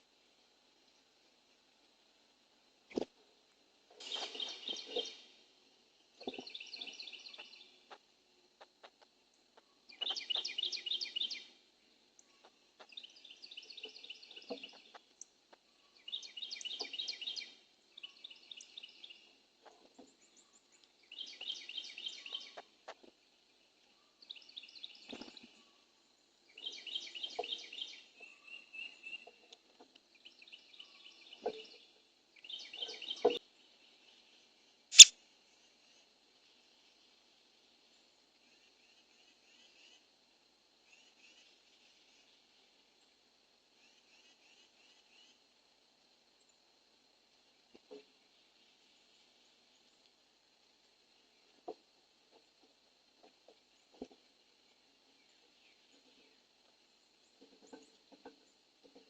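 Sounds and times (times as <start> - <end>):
songbird singing: 3.9 - 36.0, 51.0 - 59.0.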